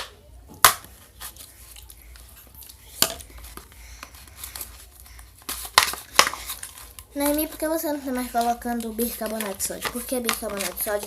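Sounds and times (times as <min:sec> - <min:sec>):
slime being stirred: 0:01.0 - 0:11.0.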